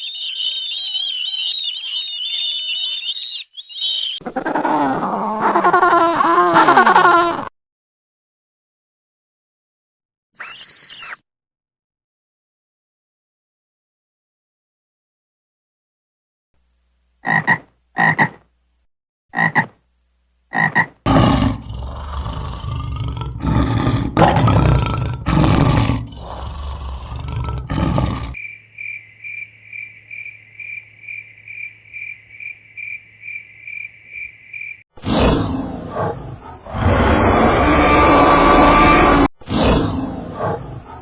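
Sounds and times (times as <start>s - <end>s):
regular pulsing animal call: 0.0s - 6.3s, 10.4s - 11.2s, 20.5s - 34.8s
animal calls: 10.4s - 11.2s.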